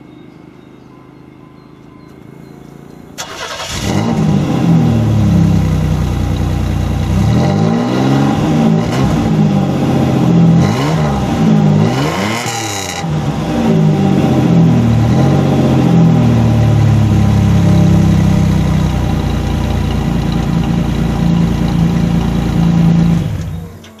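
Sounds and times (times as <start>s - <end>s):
car engine idling: 1.1s - 12.1s, 12.8s - 24.0s.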